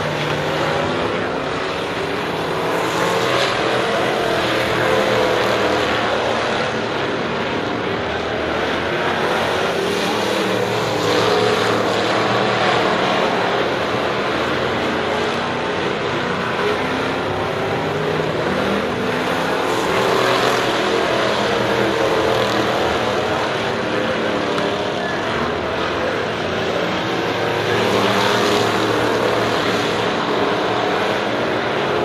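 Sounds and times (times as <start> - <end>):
race car engines passing: 0.0 - 32.0.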